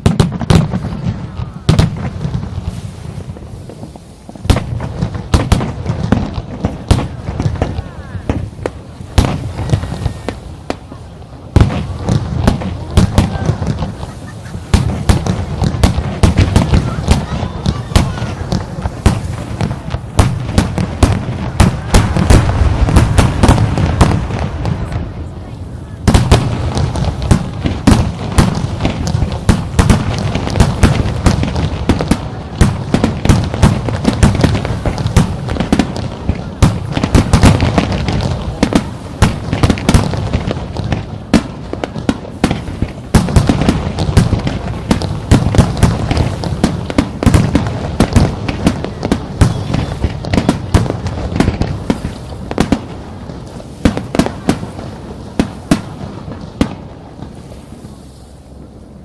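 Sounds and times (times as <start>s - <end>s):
firework shell bursts and crackles: 0.0s - 25.3s, 26.0s - 57.5s.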